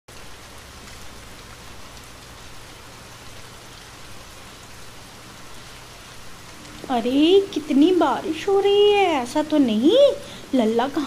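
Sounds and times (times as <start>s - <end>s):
rain on wet leaves: 0.1s - 11.0s
water running off leaves: 0.1s - 11.0s.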